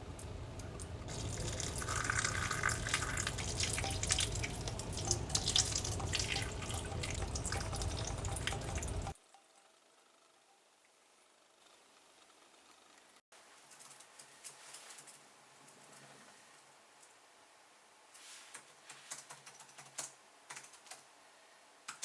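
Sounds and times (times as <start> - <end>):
tap water splashing into sink: 0.8 - 9.1.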